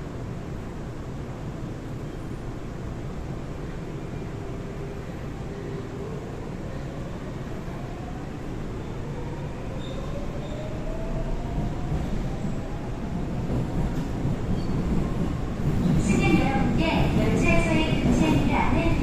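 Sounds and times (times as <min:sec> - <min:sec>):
train wheels rumbling: 0:09.8 - 0:19.0.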